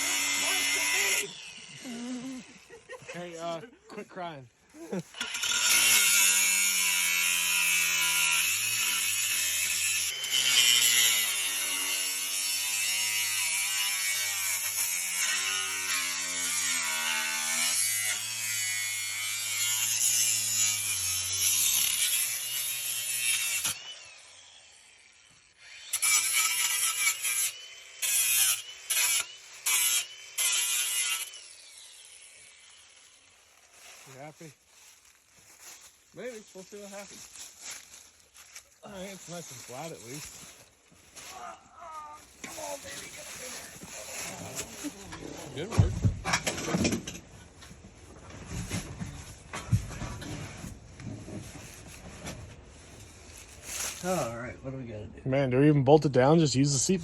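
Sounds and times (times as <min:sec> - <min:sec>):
power tool on metal: 0:00.0 - 0:03.5, 0:05.2 - 0:33.4.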